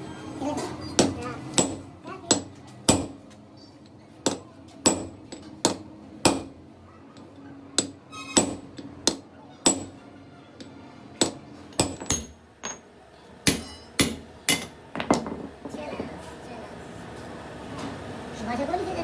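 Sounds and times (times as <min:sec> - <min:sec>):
hammer striking metal: 0:01.0 - 0:03.2, 0:04.2 - 0:06.6, 0:07.8 - 0:15.4.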